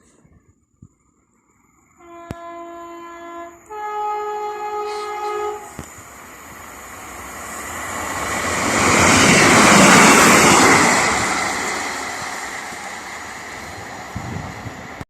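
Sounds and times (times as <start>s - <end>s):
train passing with rushing noise: 1.5s - 15.0s
train two-note horn: 2.0s - 5.8s.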